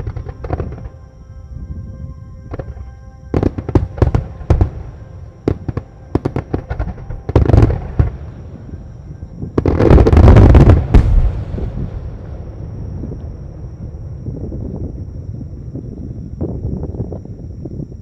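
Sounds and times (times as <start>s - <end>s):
fireworks bursting with sharp bangs: 0.0s - 0.9s, 2.5s - 8.3s, 9.5s - 13.1s.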